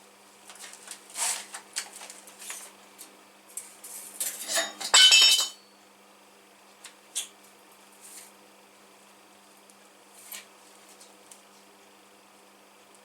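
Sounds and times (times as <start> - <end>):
metal pieces clinking together: 4.4 - 5.6.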